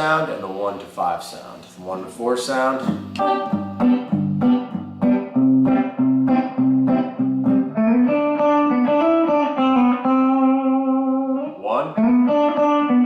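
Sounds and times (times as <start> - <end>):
backing track: 2.7 - 13.0
electric guitar country lick: 2.7 - 13.0.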